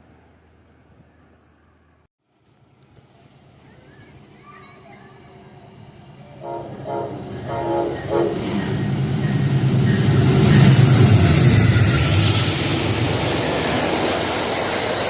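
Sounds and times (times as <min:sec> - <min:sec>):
train engine rumble: 0:00.0 - 0:15.0
train wheel and air noise: 0:00.0 - 0:15.0
train horn blasts: 0:06.4 - 0:08.7.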